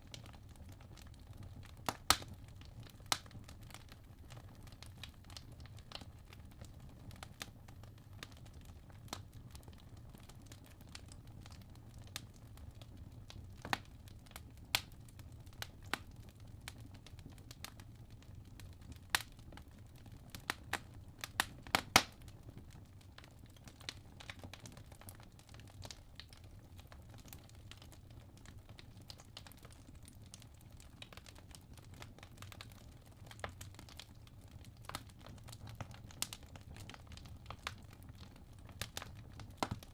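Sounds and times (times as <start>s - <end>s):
low rumble of fire: 0.0s - 39.9s
wood fire crackling and popping: 0.0s - 39.9s.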